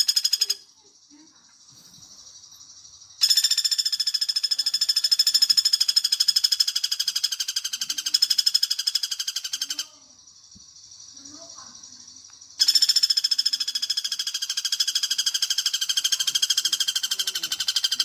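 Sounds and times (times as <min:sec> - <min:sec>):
woodpecker rattling call: 0:00.0 - 0:00.7, 0:03.2 - 0:10.1, 0:11.8 - 0:18.0
faint bird trill: 0:00.0 - 0:00.8, 0:01.7 - 0:18.0.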